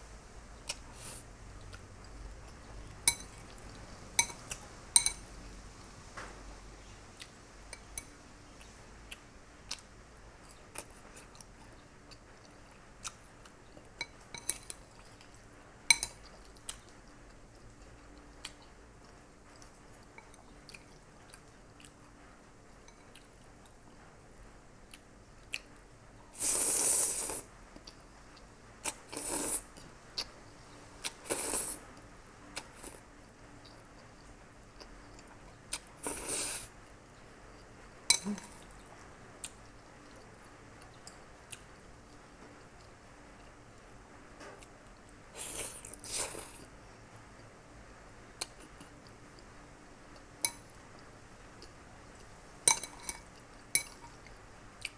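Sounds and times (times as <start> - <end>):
fork clinking against dish: 3.1 - 3.4, 4.2 - 4.4, 5.0 - 5.2, 14.0 - 14.8, 15.9 - 16.2, 38.1 - 38.6, 52.7 - 54.2
chewing: 7.2 - 22.2.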